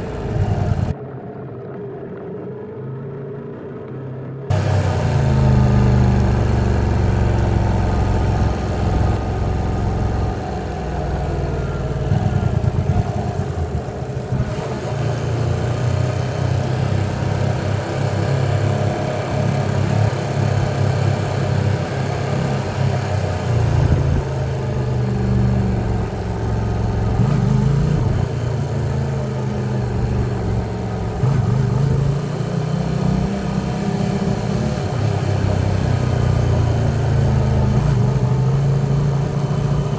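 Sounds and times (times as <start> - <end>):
motorcycle engine running: 0.0 - 1.0, 4.5 - 39.9.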